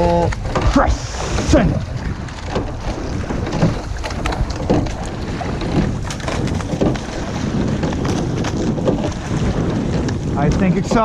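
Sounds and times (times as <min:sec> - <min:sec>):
rowing knocks: 0:00.0 - 0:11.0
water rushing past a boat: 0:00.0 - 0:11.0
wind on microphone: 0:00.0 - 0:11.0.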